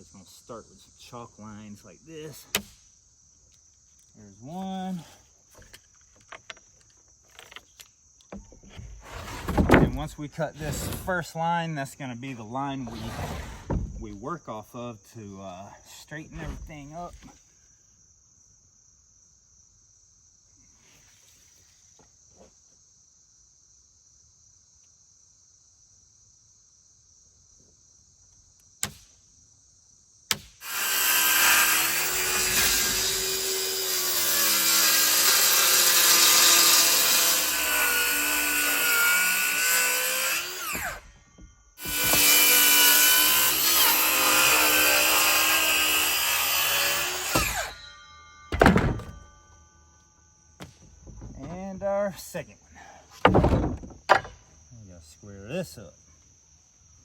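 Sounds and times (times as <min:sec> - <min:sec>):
faint insect buzz: 0:00.0 - 0:13.8, 0:15.3 - 0:47.0
circular saw cutting wood: 0:09.0 - 0:11.3, 0:30.6 - 0:41.1, 0:41.8 - 0:49.3.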